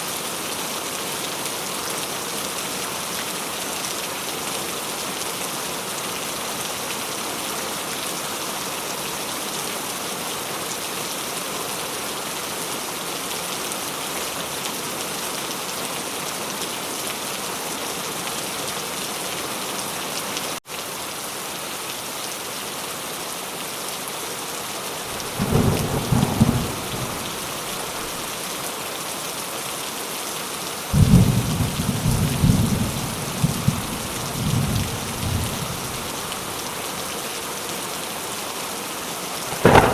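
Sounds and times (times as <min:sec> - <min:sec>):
heavy rain: 0:00.0 - 0:39.9
low rolls of thunder: 0:25.1 - 0:28.3, 0:31.0 - 0:36.4, 0:39.5 - 0:39.9.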